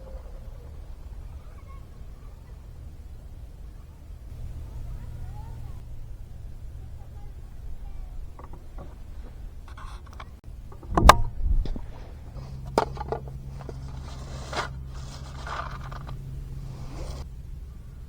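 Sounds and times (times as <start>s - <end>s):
steady low hum: 0.0s - 18.0s
small objects clicking and scraping: 11.7s - 17.2s.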